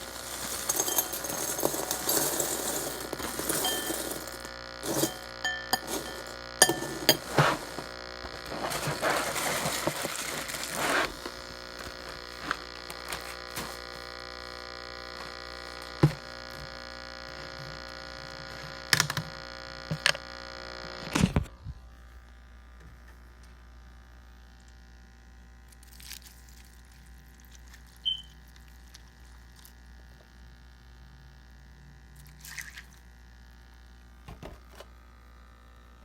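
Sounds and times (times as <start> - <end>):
steady electrical hum: 0.0 - 36.0
spoon clinking against bowl: 0.4 - 2.6, 3.5 - 4.3, 4.9 - 7.3
rustling noise: 7.1 - 14.0.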